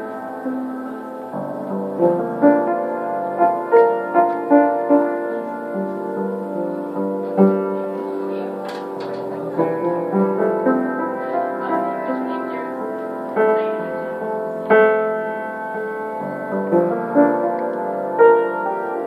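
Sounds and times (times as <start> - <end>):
piano notes and chords: 0.0 - 19.0.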